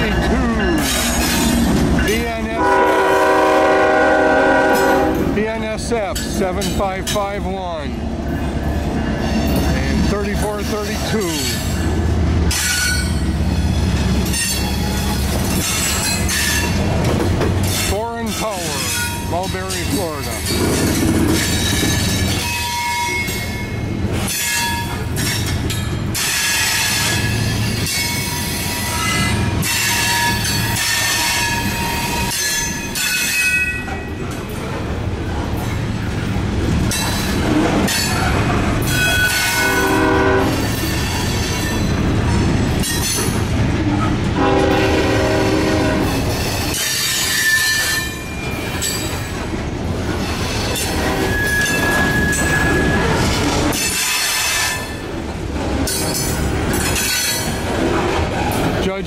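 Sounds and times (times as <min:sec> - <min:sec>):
wheels clicking over rail joints: 0:00.0 - 0:02.6, 0:04.7 - 0:39.9, 0:40.5 - 0:44.4, 0:46.0 - 0:59.0
train wheels rumbling: 0:00.0 - 0:59.0
horn chords: 0:02.5 - 0:05.4
wheel flanges squealing: 0:12.5 - 0:16.9, 0:17.6 - 0:34.3, 0:36.8 - 0:42.1, 0:46.0 - 0:49.4, 0:50.2 - 0:55.2.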